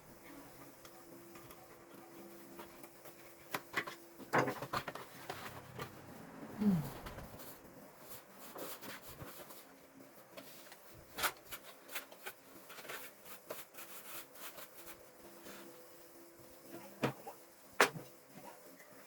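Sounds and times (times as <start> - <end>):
brief falling voice-like sound: 6.4 - 7.4.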